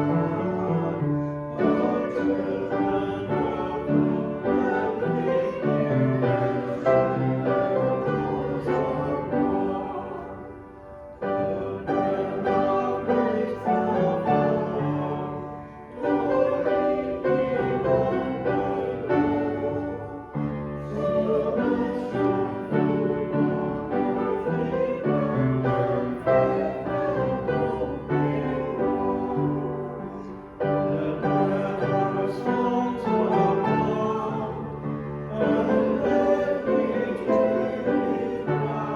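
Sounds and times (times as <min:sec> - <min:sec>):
piano accompaniment: 0:00.0 - 0:38.9
voices singing a hymn: 0:00.0 - 0:38.9.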